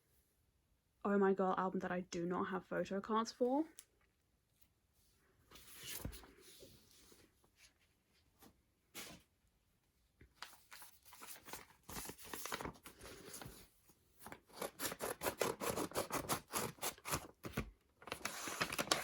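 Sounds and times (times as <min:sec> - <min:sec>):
packaging crinkling and rustling: 0:10.3 - 0:13.6, 0:14.2 - 0:19.0.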